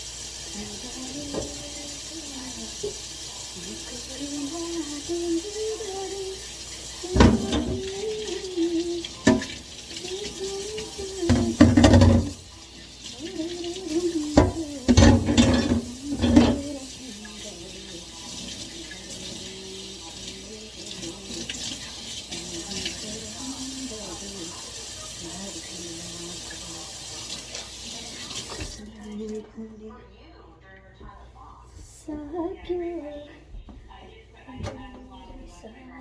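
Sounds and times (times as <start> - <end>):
tap water running into sink: 0.0 - 29.4
dishes clattering: 6.7 - 17.4.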